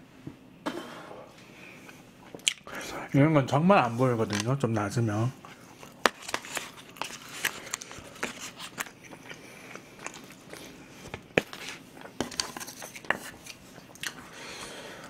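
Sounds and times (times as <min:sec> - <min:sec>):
person chewing food: 0:01.8 - 0:02.8, 0:05.4 - 0:15.0.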